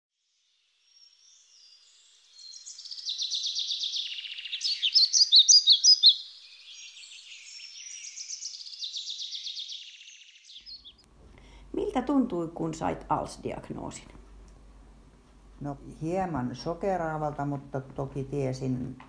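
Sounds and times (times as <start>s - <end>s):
songbirds singing: 0.4s - 11.7s.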